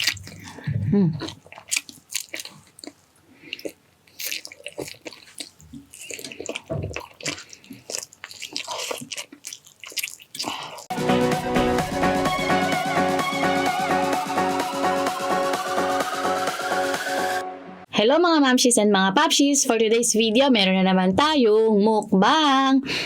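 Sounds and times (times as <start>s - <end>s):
chewing with wet mouth sounds: 0.0s - 10.9s.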